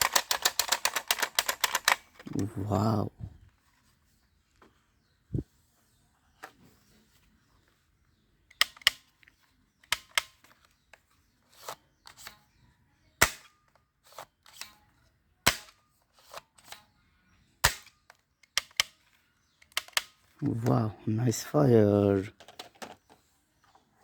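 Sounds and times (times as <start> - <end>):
toy gun snapping shots: 0.0 - 2.2, 9.9 - 10.4, 13.2 - 13.5, 15.5 - 15.8, 17.6 - 18.0, 18.6 - 19.0, 19.6 - 20.2.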